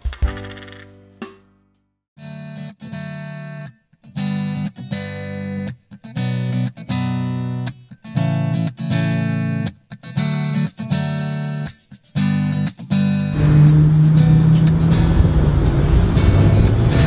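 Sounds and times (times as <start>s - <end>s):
guitar strumming chords: 13.3s - 17.0s.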